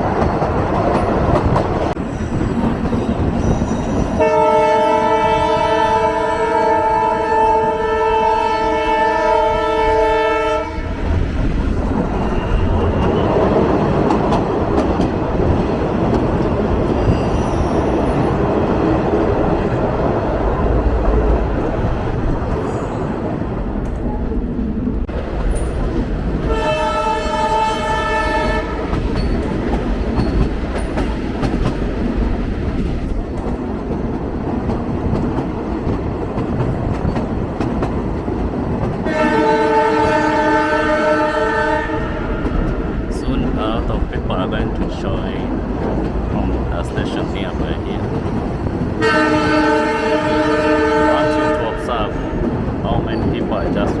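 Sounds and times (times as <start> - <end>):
train rumble and rail clatter: 0.0 - 54.0
train horn chord: 4.2 - 10.8, 26.5 - 28.9, 39.0 - 42.5, 49.0 - 52.3.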